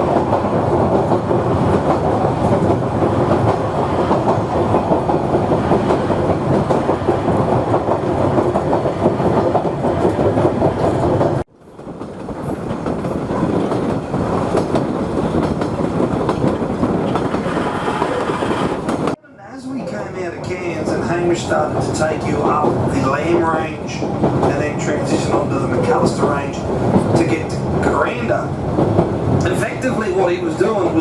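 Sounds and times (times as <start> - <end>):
rail motor running on track: 0.0 - 19.2.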